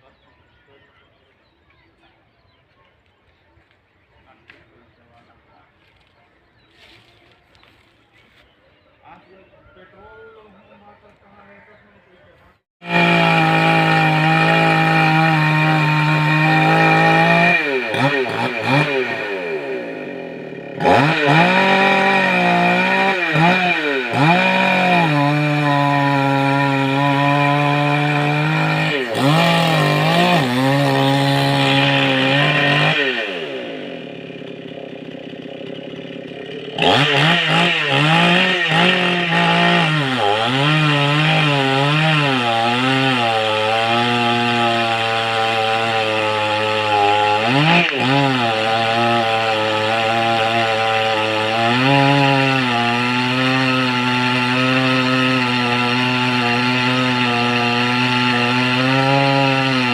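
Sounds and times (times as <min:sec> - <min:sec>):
chainsaw cutting wood: 0:12.8 - 0:59.9.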